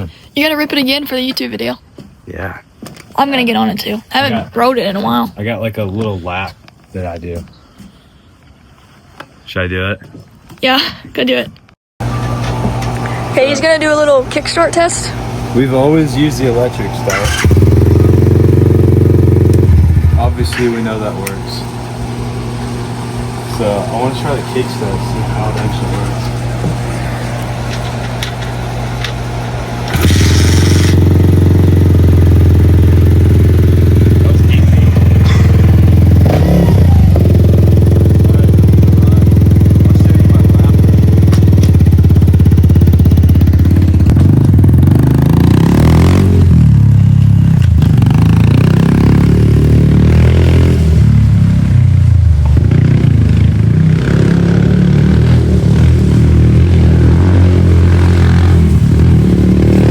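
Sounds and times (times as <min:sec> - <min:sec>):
dirt bike engine revving: 0:12.0 - 0:59.9.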